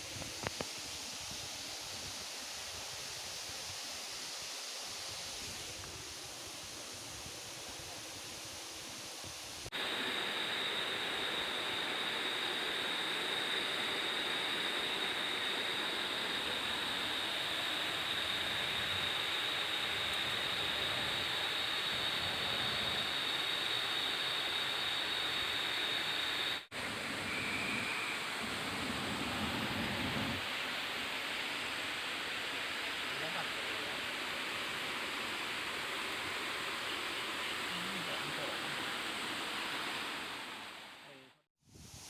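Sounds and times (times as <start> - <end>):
high whine: 9.6 - 32.1.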